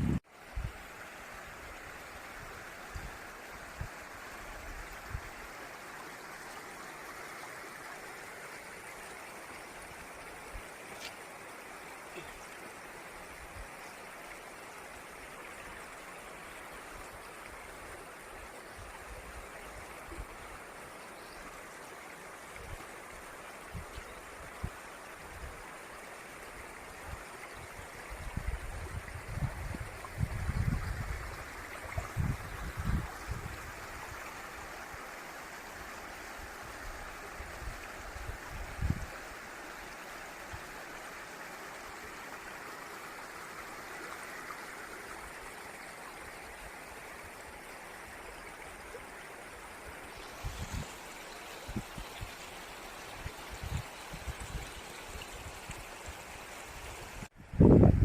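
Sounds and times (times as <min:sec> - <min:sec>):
waterfall rushing and splashing: 0:21.7 - 0:57.7.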